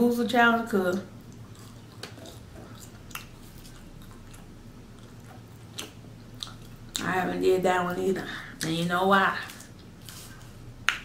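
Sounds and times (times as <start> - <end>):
chewing french fries: 0.9 - 7.4, 8.6 - 11.0
wet mouth sounds and smacks: 1.3 - 7.1.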